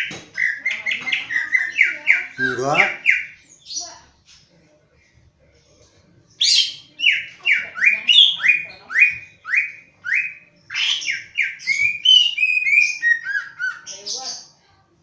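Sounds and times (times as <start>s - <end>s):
bird singing whistled notes: 6.4s - 14.5s.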